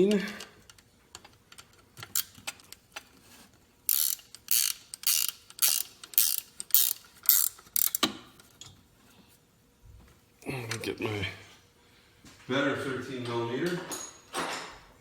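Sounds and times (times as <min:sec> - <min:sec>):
socket ratchet rasping: 0:01.6 - 0:02.8, 0:03.9 - 0:08.2.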